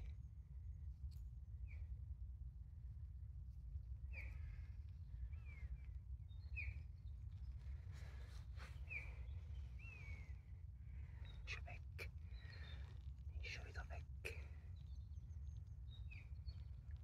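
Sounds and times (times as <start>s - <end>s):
songbird high chirps: 4.0s - 17.0s.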